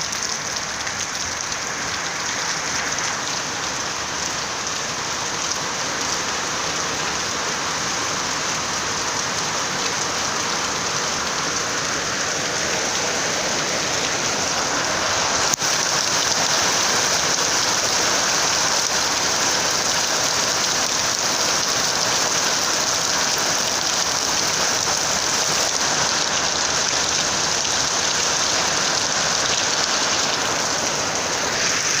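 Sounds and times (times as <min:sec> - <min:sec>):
heavy rain on a rooftop: 0:00.0 - 0:32.0.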